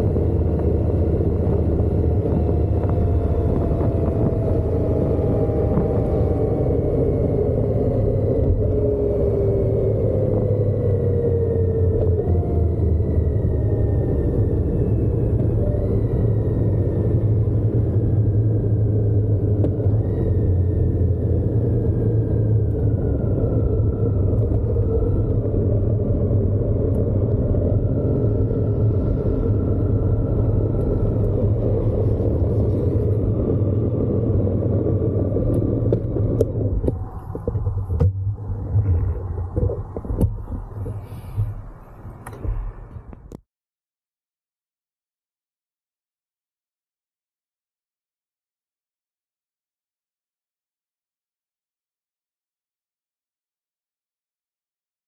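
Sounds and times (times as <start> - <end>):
motorcycle engine and wind rumble: 0.0 - 43.4.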